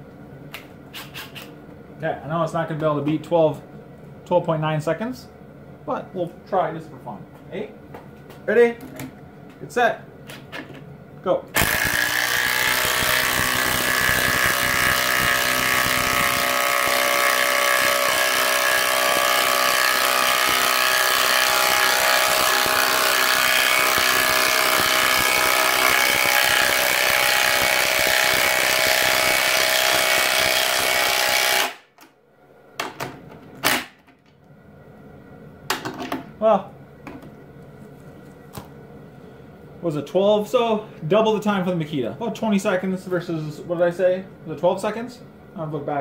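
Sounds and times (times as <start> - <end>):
impact driver hammering: 11.6 - 31.9.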